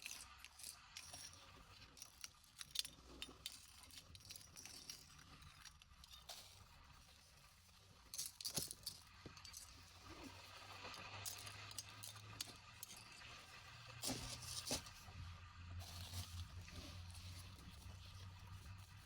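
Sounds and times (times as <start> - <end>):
small hard objects rattling: 0.0 - 7.0, 8.0 - 14.9.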